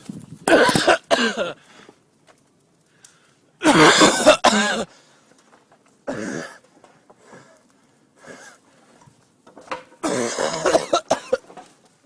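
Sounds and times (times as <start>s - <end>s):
person coughing: 0.5s - 1.6s, 3.6s - 4.9s, 6.1s - 6.6s, 10.0s - 11.4s.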